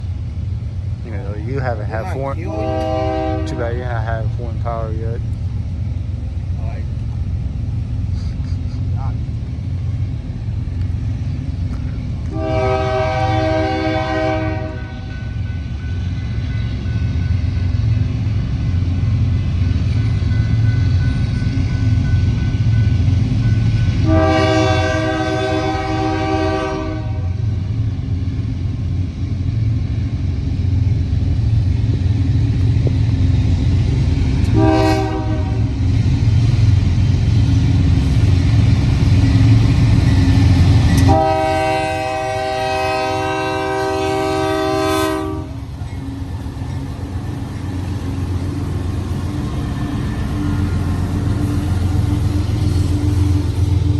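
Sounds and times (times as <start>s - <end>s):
diesel locomotive engines rumbling: 0.0s - 53.9s
train air horn blasts: 2.2s - 4.1s, 12.3s - 15.4s, 24.0s - 27.4s, 34.5s - 35.8s, 40.9s - 45.7s.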